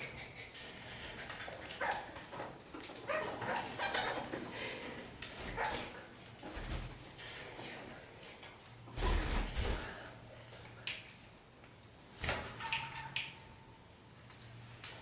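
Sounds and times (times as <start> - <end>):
knocking and rattling in a cage: 12.2 - 13.6.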